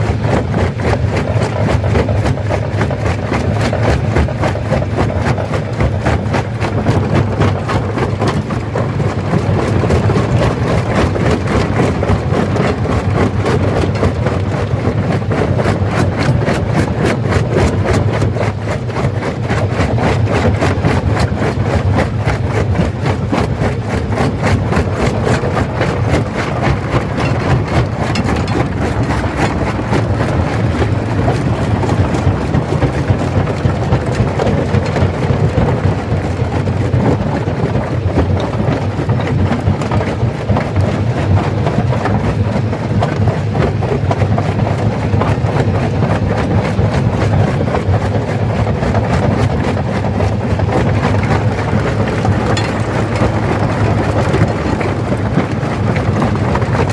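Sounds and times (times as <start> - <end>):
stone crusher droning: 3.8 - 37.6, 50.4 - 56.9.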